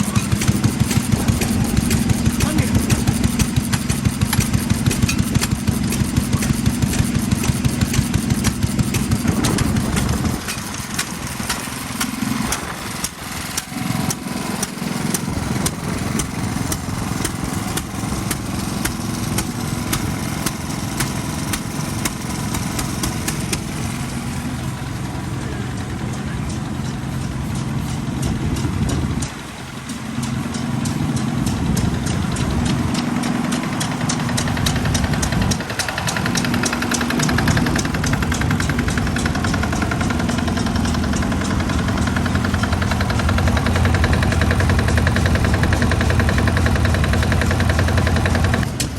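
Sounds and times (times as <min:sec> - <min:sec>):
stationary engines running: 0:00.0 - 0:48.9.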